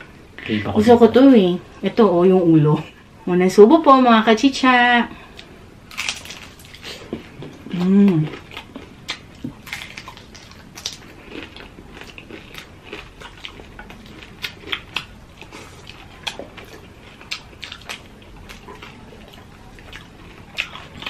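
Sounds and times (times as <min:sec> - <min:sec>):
people chewing food: 0:05.1 - 0:21.0.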